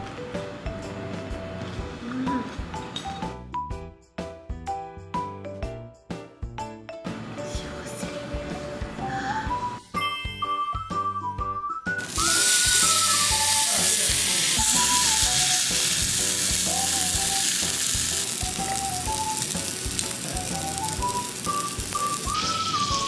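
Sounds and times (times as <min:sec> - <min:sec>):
light background music: 0:00.0 - 0:23.0
food sizzling on hot surface: 0:12.0 - 0:23.0.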